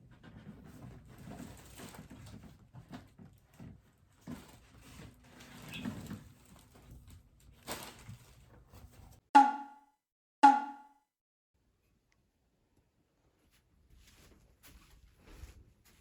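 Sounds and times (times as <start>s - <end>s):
struck tones ringing: 9.4s - 11.0s.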